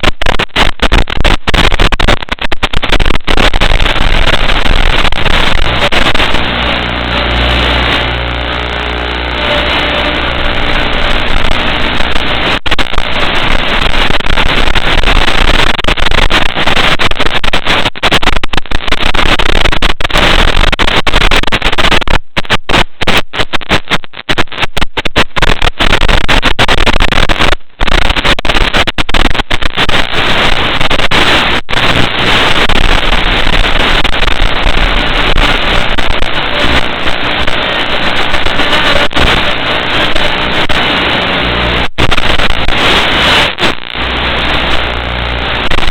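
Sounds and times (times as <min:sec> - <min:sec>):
loud steady static hiss: 0:00.0 - 0:45.9.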